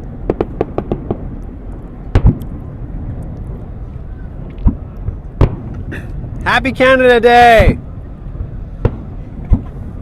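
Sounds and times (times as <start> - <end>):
fireworks cracking: 0.0 - 3.8
low rumble: 0.0 - 7.0
fireworks bangs: 0.2 - 1.4, 2.1 - 2.6, 4.6 - 5.9, 8.8 - 9.8.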